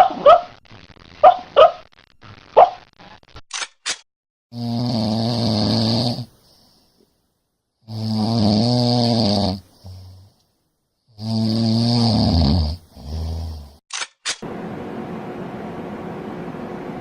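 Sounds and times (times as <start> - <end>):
loud snoring: 4.5 - 6.4, 7.9 - 10.3, 11.2 - 13.8
quick clicks: 13.9 - 14.4.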